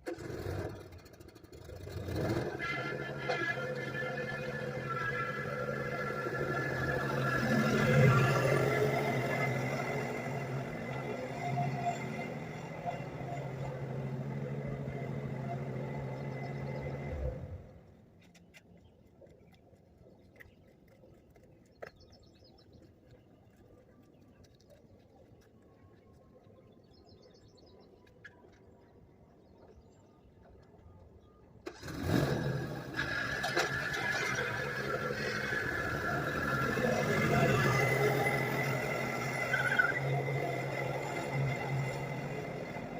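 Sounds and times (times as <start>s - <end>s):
lawn mower engine running: 31.7s - 42.9s.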